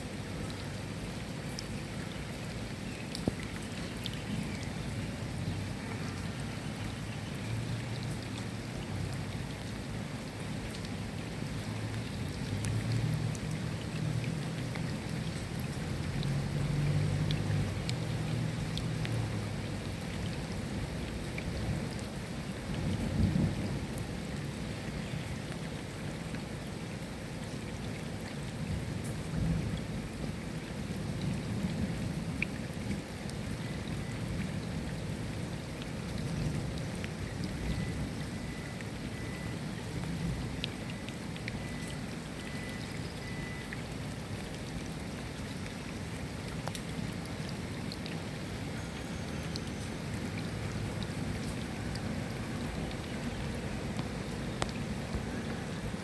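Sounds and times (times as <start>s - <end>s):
raindrops ticking: 0.0s - 56.0s
steady rain: 0.0s - 56.0s
low thunder rumbling: 22.8s - 24.0s.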